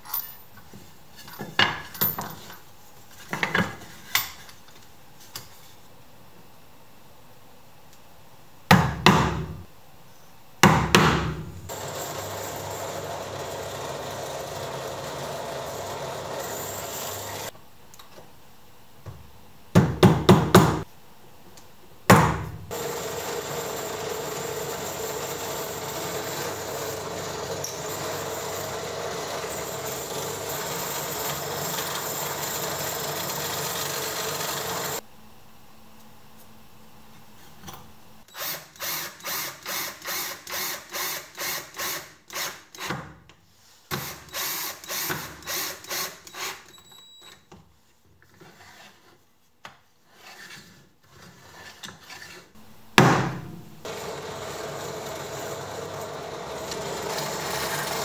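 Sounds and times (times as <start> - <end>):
tool working on wood: 22.7 - 35.0, 53.8 - 58.0.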